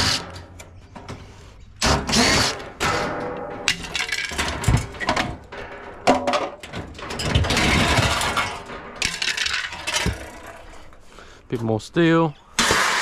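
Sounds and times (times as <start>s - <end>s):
metal clanks: 0.0s - 11.0s
metal scraping and rattling: 0.0s - 11.2s, 12.6s - 13.0s.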